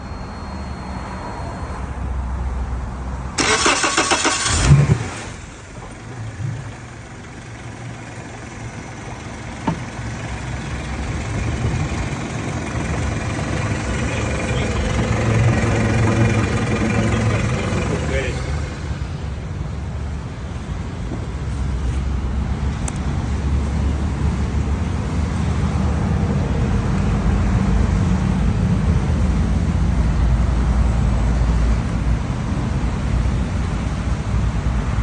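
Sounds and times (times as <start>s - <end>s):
electric starter cranking: 3.4s - 6.8s
outboard motor idling: 3.4s - 19.2s.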